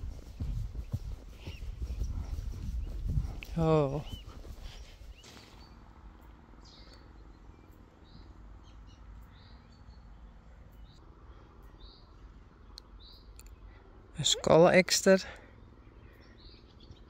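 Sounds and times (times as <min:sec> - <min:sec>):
faint high bird calls: 0:00.0 - 0:05.8.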